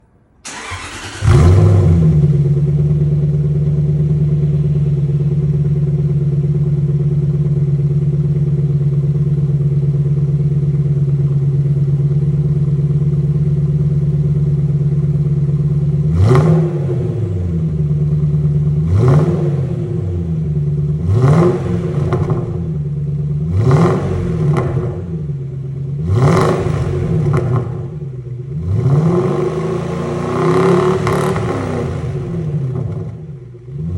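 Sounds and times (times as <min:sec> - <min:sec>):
car engine starting and idling: 0:00.4 - 0:33.9
engine revving in throttle blips: 0:00.5 - 0:05.1, 0:16.0 - 0:33.9.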